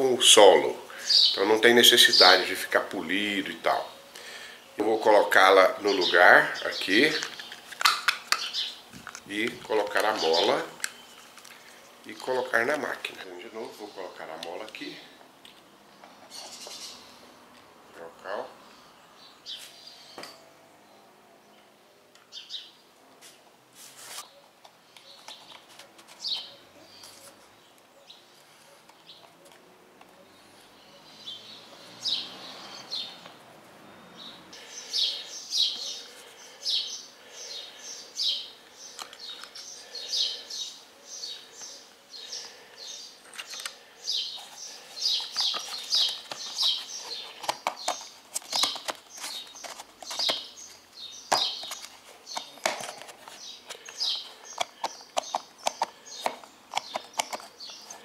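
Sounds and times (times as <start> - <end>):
birds chirping: 0.0 - 22.9, 24.2 - 58.0
plastic spool clicks and knocks: 53.9 - 58.0.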